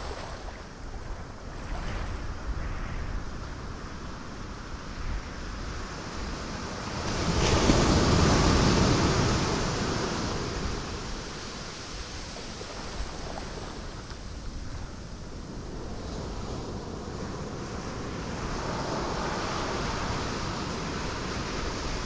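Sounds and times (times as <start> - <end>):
surf rushing: 5.7 - 22.0
waves crashing on rocks: 6.1 - 22.0.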